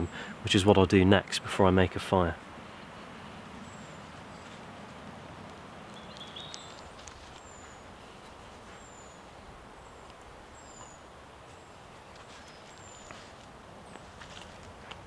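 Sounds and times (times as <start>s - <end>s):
outdoor hiss: 0.0s - 0.6s
wooden stick clicks and scrapes: 6.1s - 7.5s.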